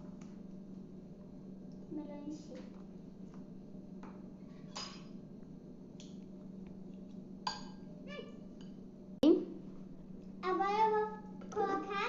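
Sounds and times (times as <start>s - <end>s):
steady low hum: 0.0s - 12.0s
spoon clinking against a dish: 7.5s - 7.9s.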